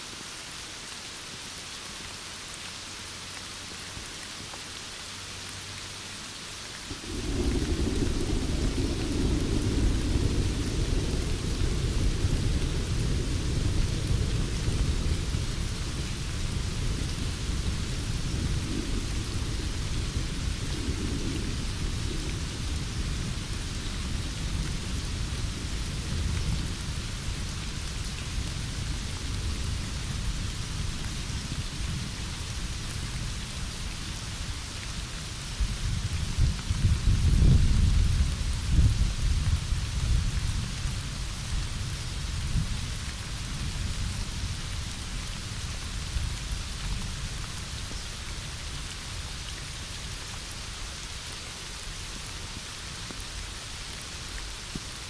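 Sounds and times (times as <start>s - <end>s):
heavy rain: 0.0s - 55.0s
thunder rumbling: 6.9s - 32.8s, 35.8s - 41.1s.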